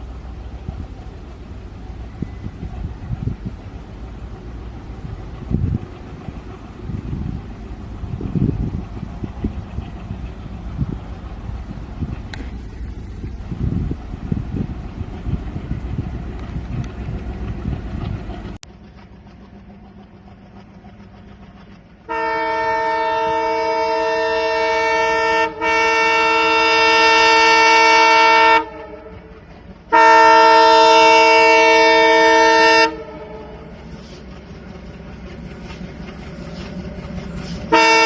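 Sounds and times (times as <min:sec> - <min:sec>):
low locomotive rumble: 0:00.0 - 0:38.0
locomotive horn blasts: 0:22.1 - 0:33.7, 0:37.6 - 0:38.0.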